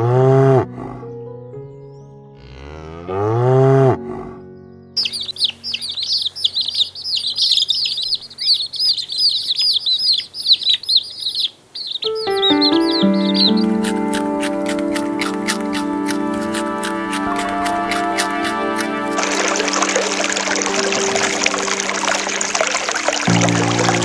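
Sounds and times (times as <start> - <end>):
cow mooing: 2.4 - 4.4, 12.2 - 20.6
small birds chirping: 4.6 - 24.0
music with held notes: 12.1 - 24.0.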